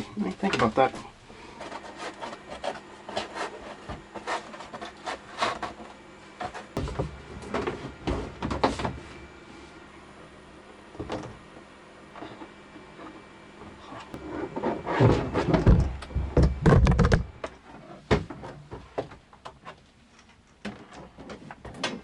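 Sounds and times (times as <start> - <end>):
objects knocking and scraping: 12.2 - 22.0.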